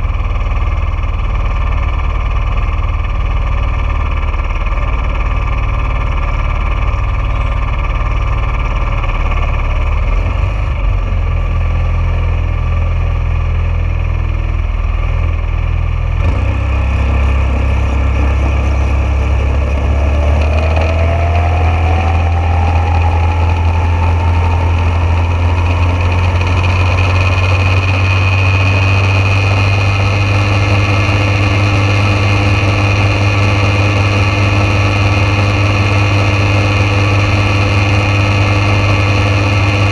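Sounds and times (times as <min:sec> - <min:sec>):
dragster engine drone: 0:00.0 - 0:39.9
faint whine: 0:14.4 - 0:39.9.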